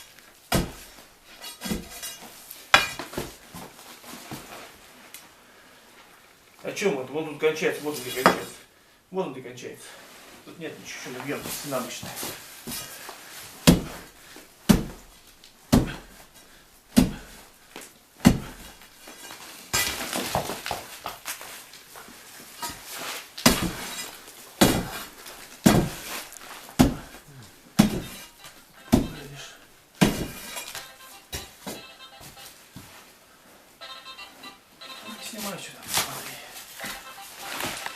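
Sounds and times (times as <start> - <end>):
brick and plaster crumbling: 18.2 - 21.6, 22.5 - 27.2, 27.8 - 31.6
metal tool striking brick: 27.8 - 29.3.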